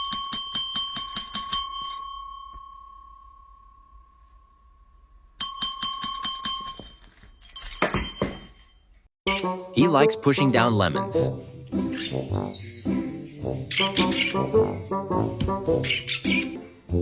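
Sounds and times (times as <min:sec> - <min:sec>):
small metal bell rapid strikes: 0:00.0 - 0:03.2, 0:05.4 - 0:08.8.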